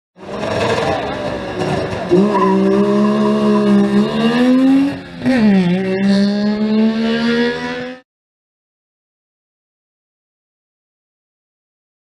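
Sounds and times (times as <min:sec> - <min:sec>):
rally car engine revving: 0:00.2 - 0:08.0.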